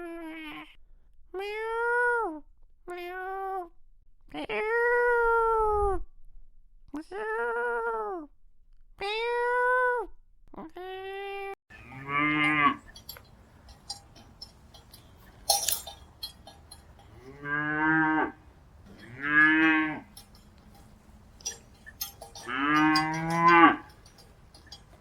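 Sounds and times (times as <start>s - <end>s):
cattle mooing: 11.7s - 25.0s
short clinks and ticks: 11.8s - 17.8s, 18.4s - 25.0s.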